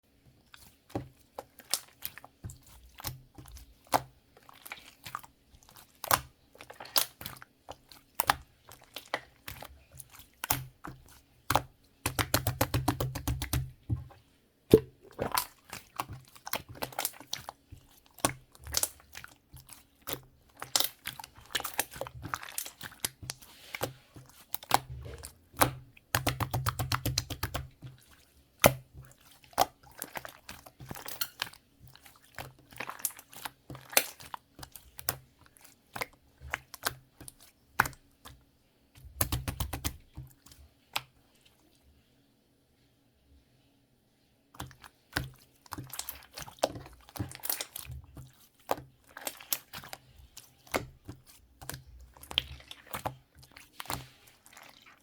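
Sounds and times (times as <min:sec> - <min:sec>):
crunchy food being chewed: 0:44.6 - 0:55.0.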